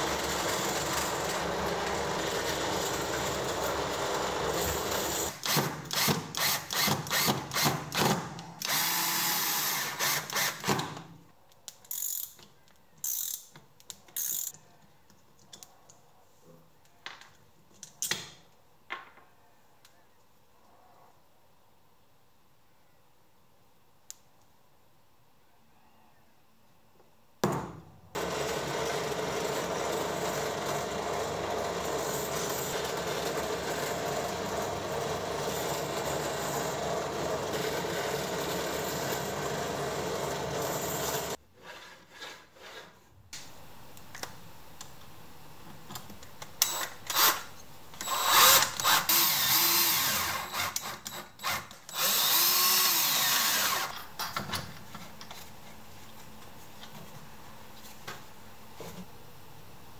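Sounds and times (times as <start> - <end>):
power drill running: 0.0 - 10.7, 28.2 - 41.4, 48.0 - 53.9
power tool bursts: 4.6 - 10.8, 46.7 - 53.9.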